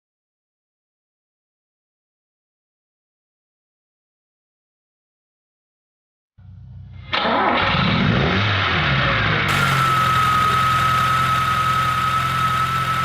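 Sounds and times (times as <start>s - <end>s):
car engine starting and idling: 7.1s - 13.0s
steady high whine: 9.5s - 13.0s.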